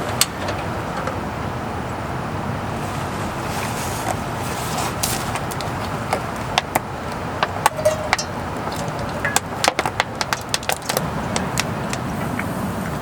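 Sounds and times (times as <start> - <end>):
steady rush of rain: 1.4 - 13.0
raindrops tapping on a surface: 5.0 - 13.0.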